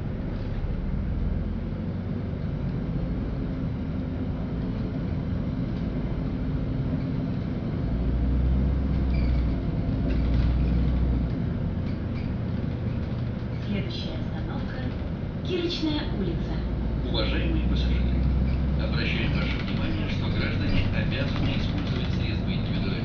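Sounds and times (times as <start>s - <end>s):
bus engine and road rumble: 0.0s - 23.0s
faint rattles: 8.8s - 16.4s, 17.8s - 23.0s.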